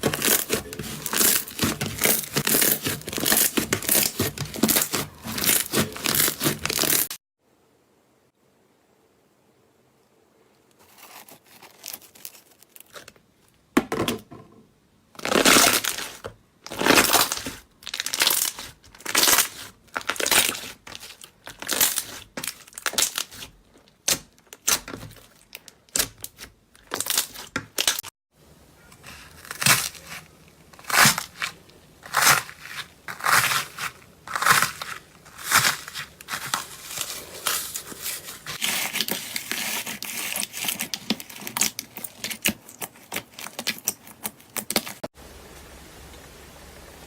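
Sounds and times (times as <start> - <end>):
slime squelching crunchily: 0.0 - 7.2, 15.2 - 28.1, 28.8 - 45.1.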